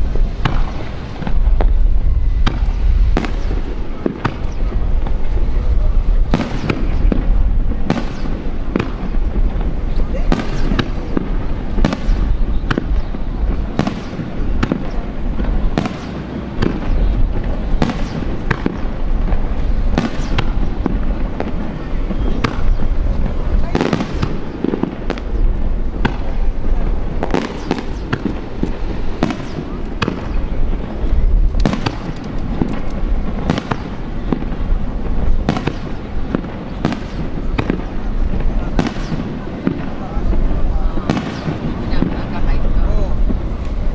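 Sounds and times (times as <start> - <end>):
fireworks bangs: 0.0 - 43.9
low rumble of fireworks: 0.0 - 43.9.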